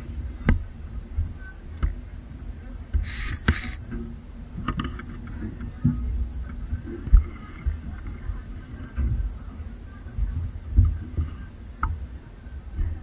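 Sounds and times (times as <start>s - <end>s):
train low rumble: 0.0s - 13.0s
short hiss: 3.0s - 3.8s.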